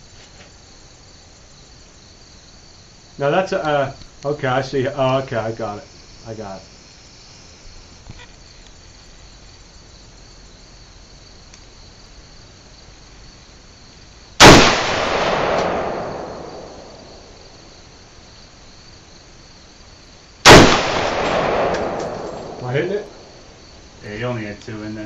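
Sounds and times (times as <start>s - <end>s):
insects chirring: 0.0s - 25.0s
rifle shot: 14.4s - 17.6s, 20.4s - 23.4s.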